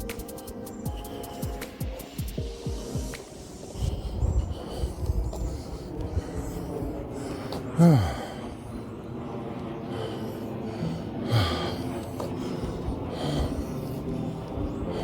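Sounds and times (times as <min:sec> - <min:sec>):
person sighing: 0:07.7 - 0:08.5, 0:10.8 - 0:11.9.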